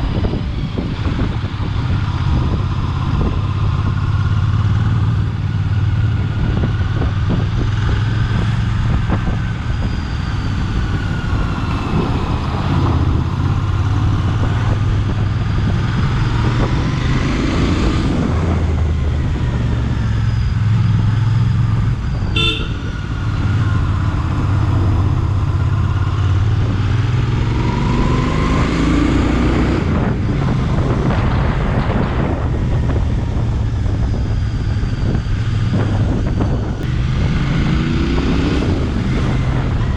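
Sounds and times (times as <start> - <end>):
motorcycle engine running: 0.0 - 27.6
wind noise on microphone: 0.0 - 39.9
horn beep: 22.2 - 23.1.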